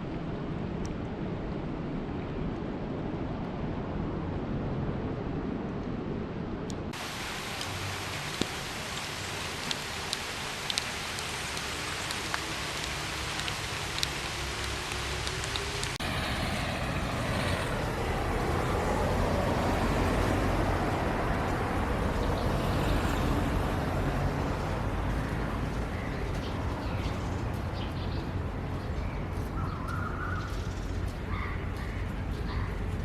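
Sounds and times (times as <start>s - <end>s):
rain: 6.9s - 33.0s
vehicle passing on wet road: 7.0s - 27.7s.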